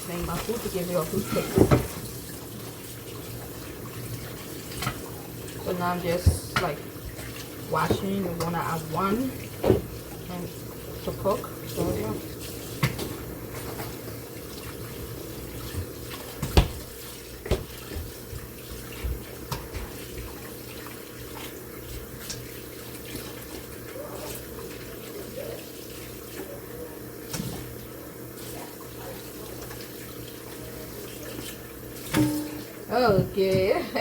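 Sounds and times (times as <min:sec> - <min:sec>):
food rinsed by hand: 0:00.0 - 0:34.0
tap running into a sink: 0:00.2 - 0:10.3, 0:11.2 - 0:14.9, 0:15.6 - 0:25.5, 0:27.3 - 0:27.8, 0:31.3 - 0:33.8.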